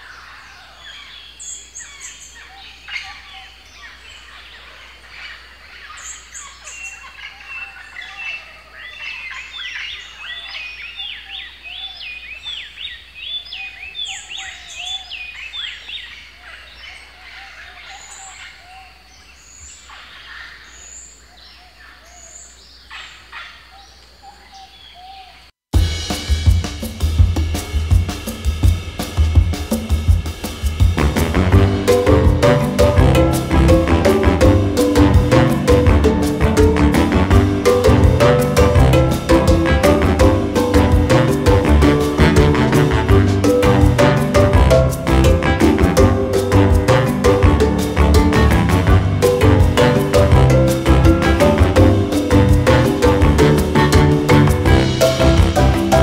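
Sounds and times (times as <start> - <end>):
many birds calling and chirping: 0.0 - 25.5.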